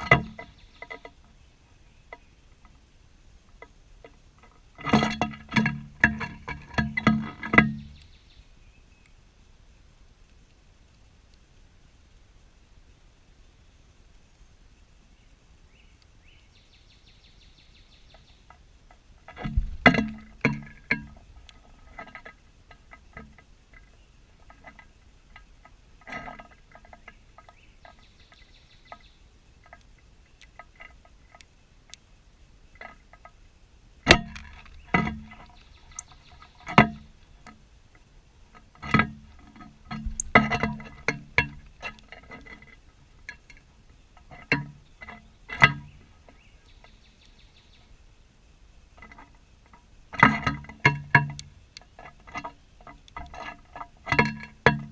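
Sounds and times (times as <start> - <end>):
sharp ringing taps and knocks: 4.0 - 8.0, 18.5 - 29.0, 34.1 - 37.6, 38.8 - 43.6, 44.2 - 46.4, 49.0 - 54.9.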